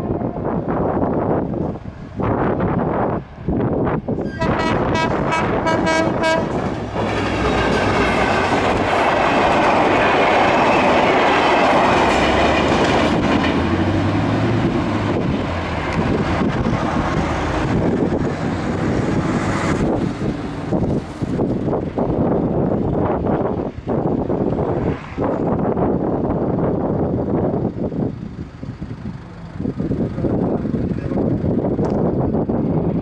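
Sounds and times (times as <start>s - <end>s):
train wheels rushing on rails: 0.0s - 33.0s
train horn blasts: 4.2s - 6.8s.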